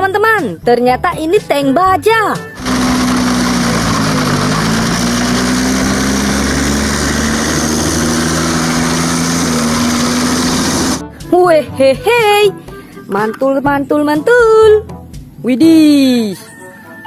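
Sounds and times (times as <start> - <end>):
motor running: 2.5 - 11.0.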